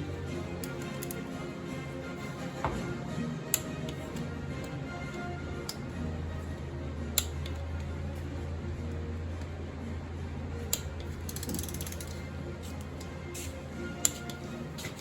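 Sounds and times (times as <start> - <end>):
steady low hum: 0.0 - 14.8
sharp tool clicks: 3.5 - 4.0, 10.7 - 12.3
fast ratcheting rattle: 10.8 - 12.3.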